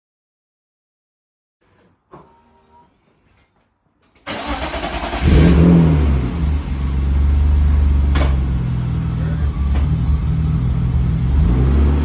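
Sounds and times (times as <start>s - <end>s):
car engine starting and running: 4.2s - 12.0s.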